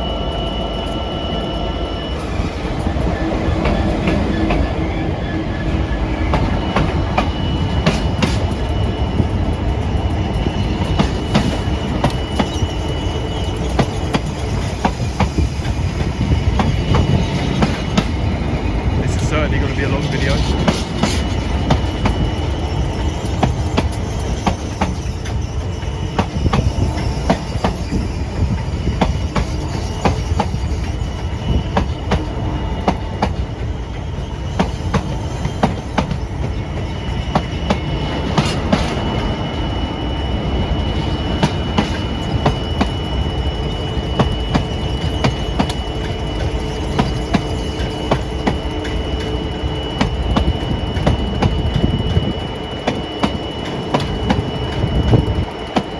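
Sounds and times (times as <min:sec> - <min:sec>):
freight train wagons rolling: 0:00.0 - 0:55.9
high wheel squeal: 0:00.0 - 0:55.9
wheels clicking over rail joints: 0:06.3 - 0:18.7, 0:19.5 - 0:39.3.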